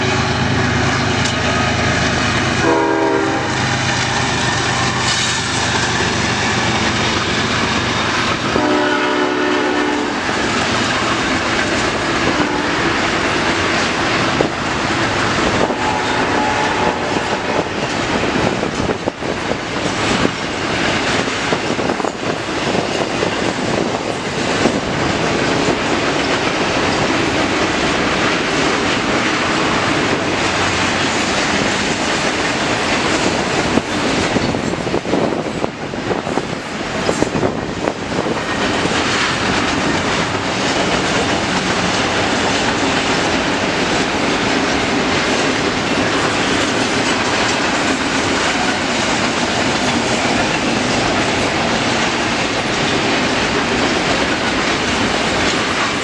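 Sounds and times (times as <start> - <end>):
freight cars rumbling and clattering: 0.0 - 9.0, 9.9 - 15.9, 16.7 - 56.0
locomotive engines running: 0.0 - 56.0
train air horn blasts: 2.5 - 3.8, 8.4 - 10.3, 12.2 - 13.1, 15.6 - 17.8.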